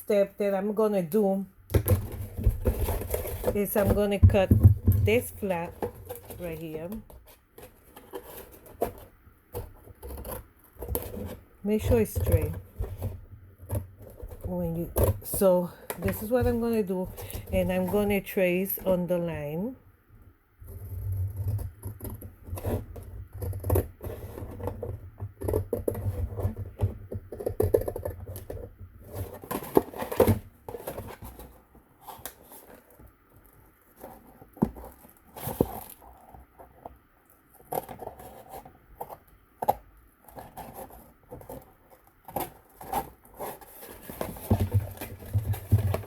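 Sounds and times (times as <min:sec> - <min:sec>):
scissors cutting cardboard: 0:01.8 - 0:18.2, 0:20.7 - 0:33.0, 0:37.6 - 0:46.0
cardboard box handling: 0:01.8 - 0:19.0, 0:40.3 - 0:46.0.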